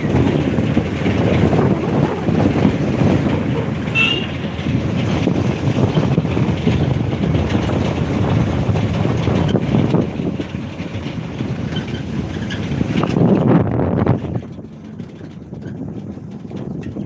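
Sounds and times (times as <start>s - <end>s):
vehicle rumbling travel noise: 0.0s - 17.0s.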